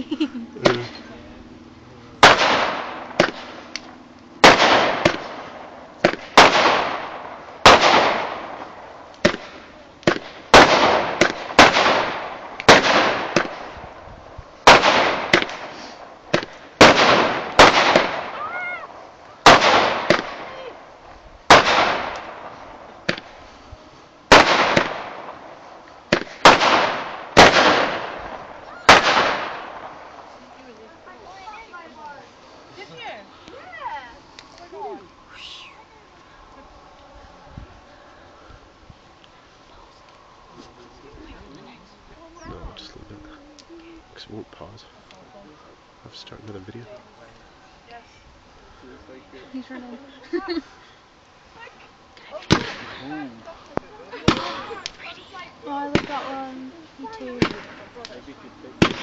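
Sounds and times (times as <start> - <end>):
fireworks banging: 2.1 - 23.5, 24.3 - 32.0, 51.6 - 59.0.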